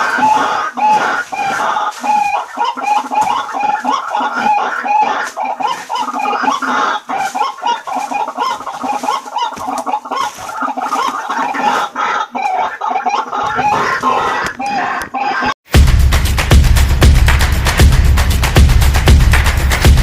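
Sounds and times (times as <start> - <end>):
bird giving harsh repeated calls: 0.0 - 15.5.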